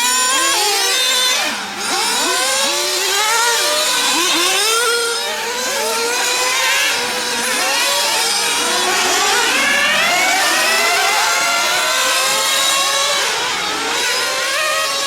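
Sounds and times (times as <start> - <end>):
rc car engines revving: 0.0 - 15.0.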